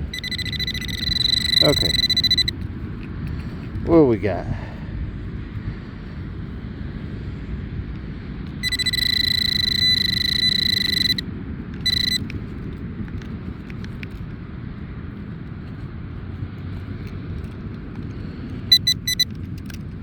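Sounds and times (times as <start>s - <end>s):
metal detector high electronic tone: 0.0s - 2.6s, 8.5s - 12.3s, 18.7s - 19.4s
wind rumbling on microphone: 0.0s - 20.0s.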